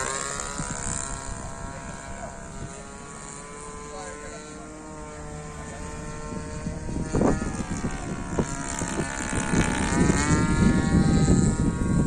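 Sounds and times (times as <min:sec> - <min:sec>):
model plane engine in flight: 0:00.0 - 0:12.0
wind rumbling on microphone: 0:00.0 - 0:12.0.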